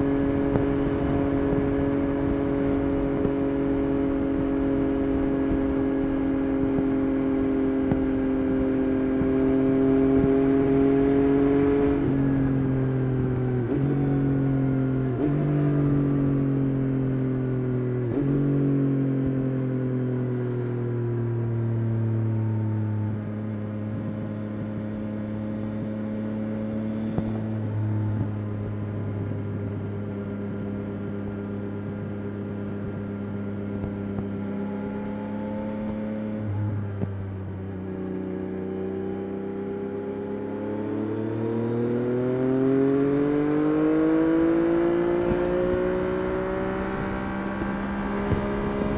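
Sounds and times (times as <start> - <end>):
motorcycle engine revving: 0.0 - 21.0, 23.2 - 48.9
gear changes: 42.7 - 48.9.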